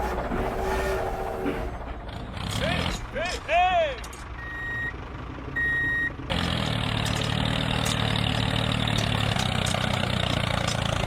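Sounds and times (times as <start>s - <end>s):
vehicle engine idling: 3.1s - 11.0s
reversing alarm beep: 4.4s - 4.9s, 5.6s - 6.1s.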